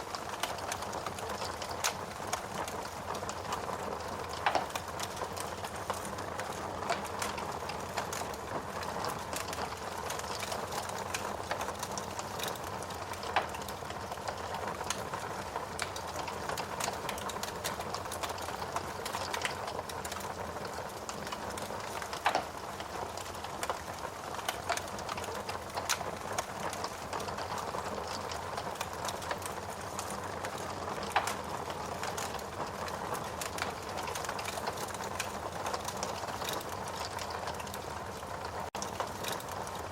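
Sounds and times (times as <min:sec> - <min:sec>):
fire crackling: 0:00.0 - 0:39.9
sharp pops of fire: 0:21.6 - 0:23.8.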